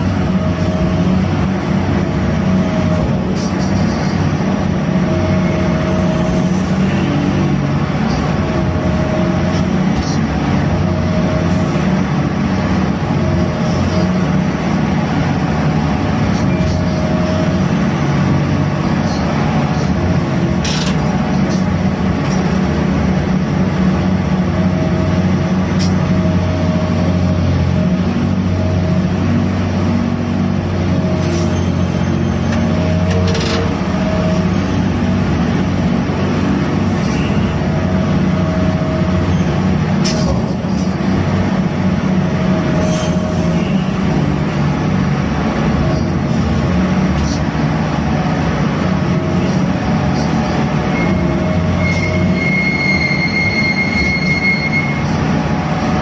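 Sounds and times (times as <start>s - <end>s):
diesel crane machinery running: 0.0s - 56.0s
higher machine tone: 50.9s - 55.7s.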